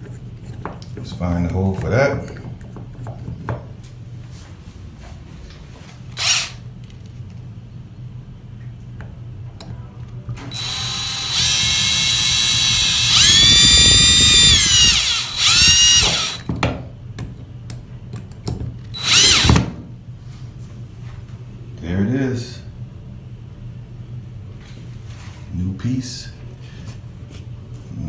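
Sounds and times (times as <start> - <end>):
power drill whining: 6.2 - 6.6, 10.5 - 16.5, 19.0 - 19.6.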